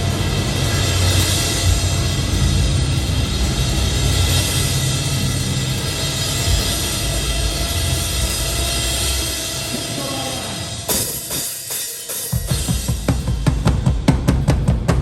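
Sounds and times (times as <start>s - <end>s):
metal band playing live: 0.0s - 15.0s
kick drum pounding beat: 12.3s - 15.0s.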